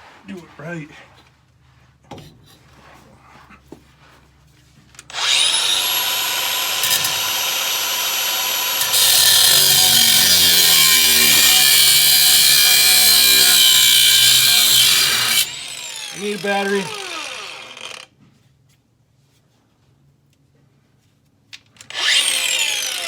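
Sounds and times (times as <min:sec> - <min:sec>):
angle grinder whining: 0:05.1 - 0:18.1, 0:21.9 - 0:23.0
grinder cutting steel: 0:05.1 - 0:18.1, 0:21.9 - 0:23.0.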